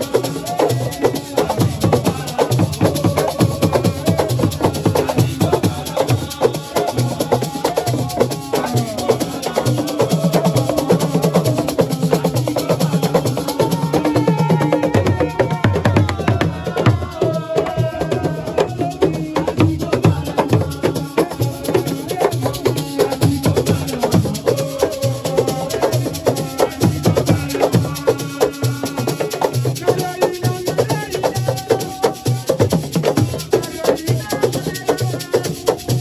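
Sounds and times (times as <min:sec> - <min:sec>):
fast hand drums: 0:00.0 - 0:36.0
lead voice singing: 0:00.0 - 0:36.0
shaken rattles: 0:16.5 - 0:36.0.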